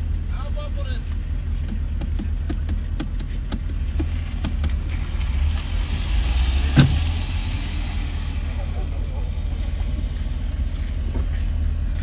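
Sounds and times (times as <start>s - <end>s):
car engine rumbling: 0.0s - 12.0s
hiss: 5.0s - 9.8s.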